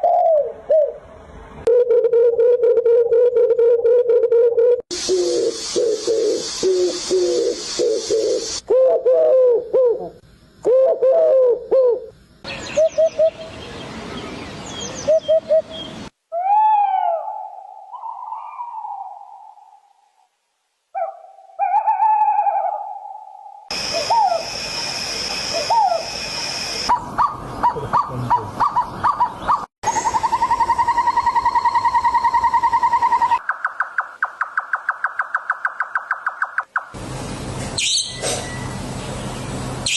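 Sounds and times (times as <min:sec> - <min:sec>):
bird cooing notes: 0:00.0 - 0:13.5, 0:15.0 - 0:19.9, 0:21.0 - 0:24.5, 0:25.4 - 0:33.4
long rising and falling bird call: 0:01.8 - 0:10.1, 0:10.7 - 0:20.0, 0:21.0 - 0:36.8
hiss: 0:04.9 - 0:08.6
fast bird trill: 0:37.8 - 0:38.3.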